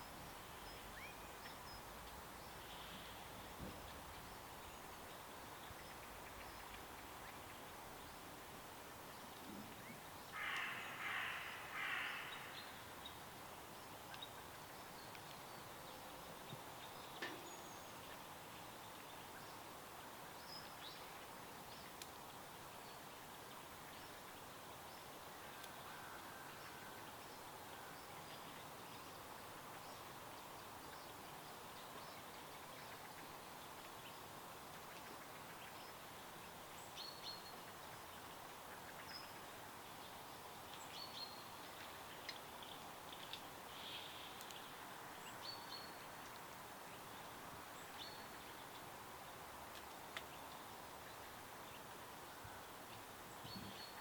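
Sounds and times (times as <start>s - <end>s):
stream water hissing: 40.2s - 47.5s.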